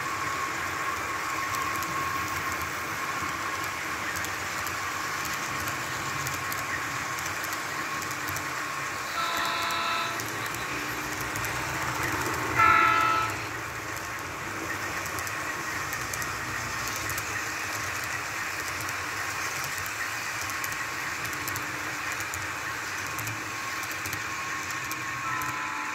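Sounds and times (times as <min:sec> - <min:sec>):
model train running: 0:00.0 - 0:25.9
model train horn blast: 0:09.0 - 0:10.7, 0:12.6 - 0:13.5, 0:25.2 - 0:25.9.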